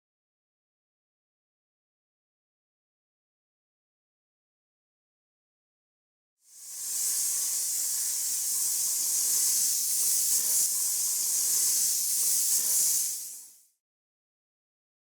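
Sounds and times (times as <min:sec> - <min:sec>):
aerosol spray can hissing: 0:06.5 - 0:13.7.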